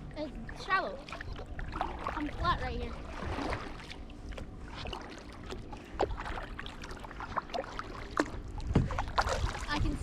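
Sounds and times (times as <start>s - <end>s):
steady low rumble: 0.0s - 10.0s
paddle splashes and drips: 0.8s - 10.0s
paddle knocking on hull: 7.6s - 9.6s.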